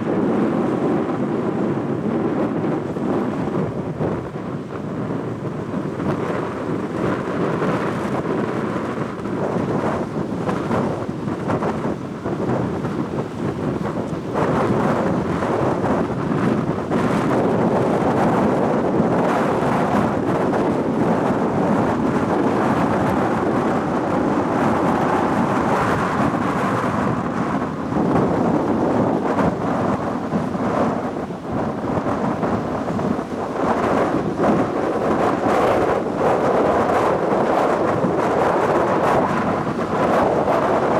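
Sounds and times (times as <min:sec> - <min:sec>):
rushing air: 0:09.4 - 0:40.9.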